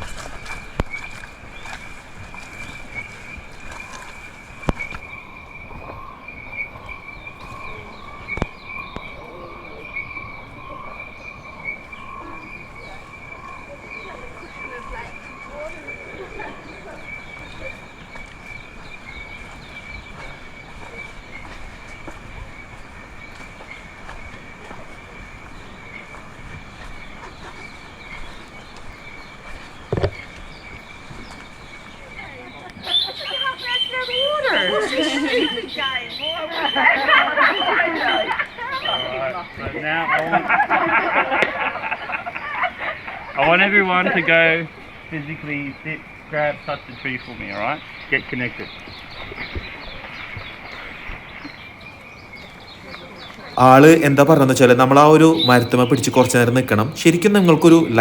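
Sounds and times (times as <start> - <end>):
lower insect drone: 0.0 - 32.5.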